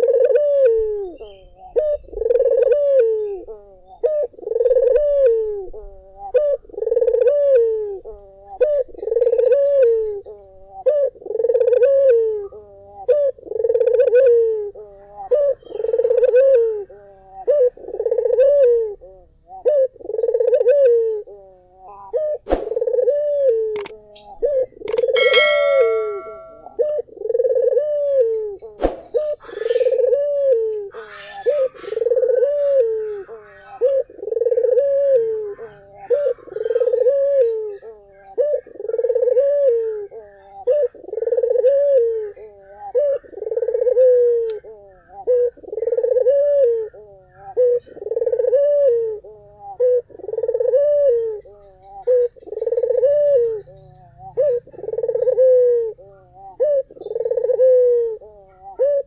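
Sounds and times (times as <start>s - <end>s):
dove cooing: 0.0s - 59.0s
sharp click: 23.8s - 24.0s, 24.9s - 26.5s.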